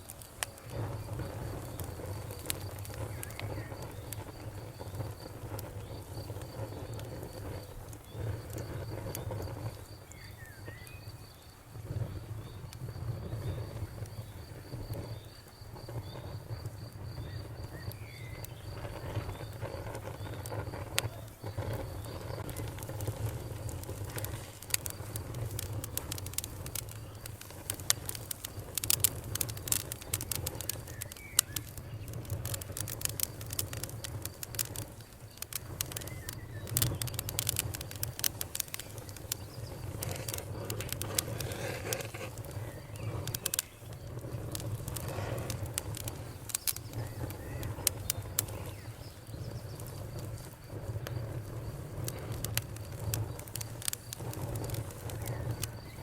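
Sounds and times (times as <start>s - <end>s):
campfire crackling and popping: 0.0s - 56.0s
cricket trilling: 0.0s - 56.0s.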